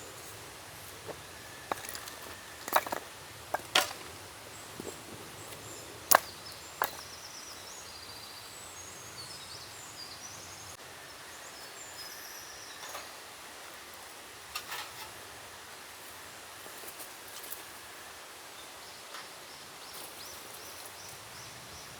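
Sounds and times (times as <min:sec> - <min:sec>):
small birds chirping: 0:00.0 - 0:10.8, 0:18.6 - 0:21.9
forest background: 0:00.0 - 0:21.9.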